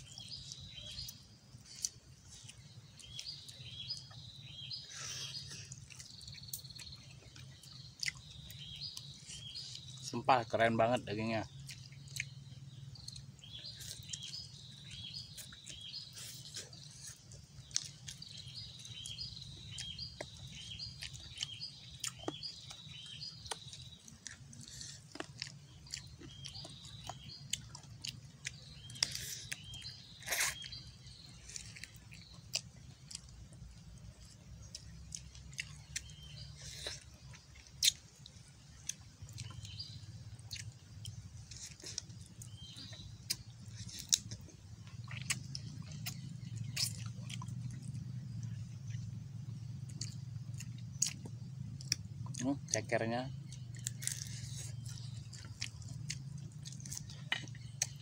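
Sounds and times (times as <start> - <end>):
chewing and biting: 0.0 - 10.1, 11.5 - 58.0
birds chirping: 0.0 - 58.0.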